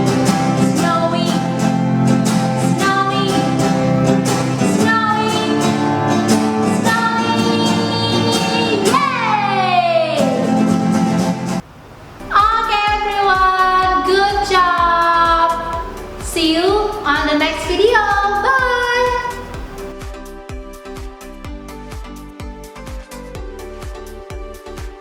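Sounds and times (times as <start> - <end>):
woman singing: 0.0 - 1.8, 2.4 - 10.8, 12.3 - 19.5
instrumental backing with beat: 0.0 - 9.0, 12.4 - 25.0.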